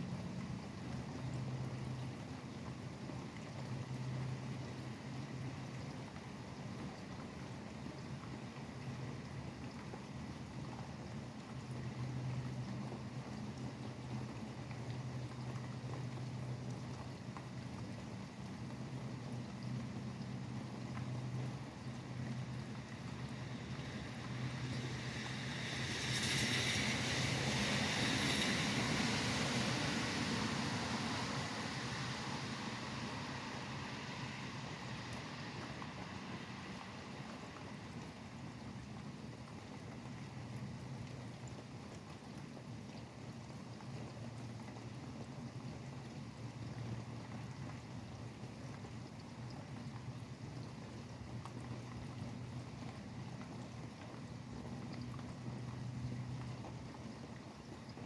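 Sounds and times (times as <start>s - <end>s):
low traffic rumble: 0.0s - 41.8s
steady rain: 0.0s - 58.0s
tyres hissing on wet road: 18.3s - 41.0s.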